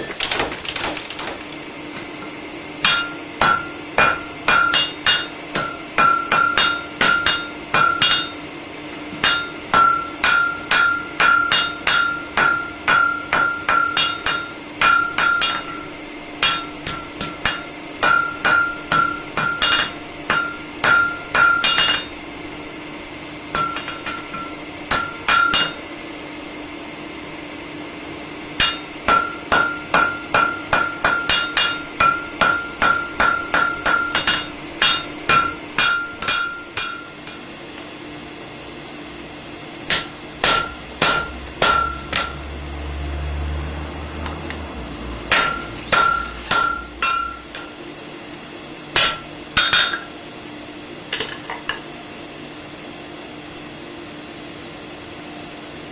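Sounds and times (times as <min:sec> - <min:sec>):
hammer striking iron on anvil: 0:02.8 - 0:22.2, 0:23.5 - 0:26.0, 0:28.6 - 0:37.6, 0:39.9 - 0:42.5, 0:45.3 - 0:47.9, 0:48.9 - 0:50.2, 0:51.1 - 0:51.9.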